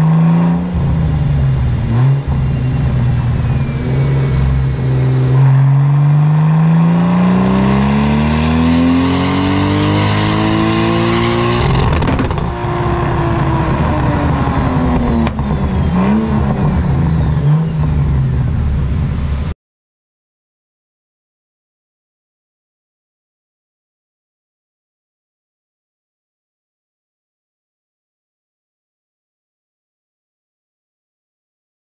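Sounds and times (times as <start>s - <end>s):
turbo whine: 0.0s - 7.7s, 9.8s - 19.4s
car engine revving: 0.0s - 19.5s.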